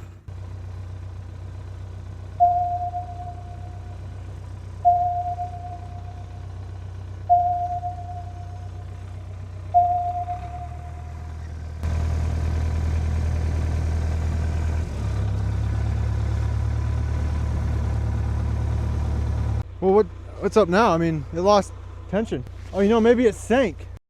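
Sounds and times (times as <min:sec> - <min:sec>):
bulldozer diesel engine running: 0:00.0 - 0:24.0
short mid-pitched tone: 0:02.4 - 0:04.0, 0:04.8 - 0:06.4, 0:07.3 - 0:09.0, 0:09.8 - 0:11.5.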